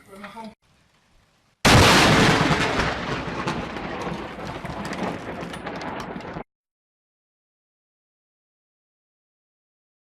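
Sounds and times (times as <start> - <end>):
thunderclap: 1.6 - 6.5.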